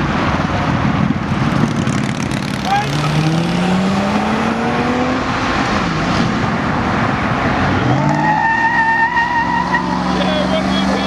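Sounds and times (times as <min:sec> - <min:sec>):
car engine revving hard: 0:01.9 - 0:06.5.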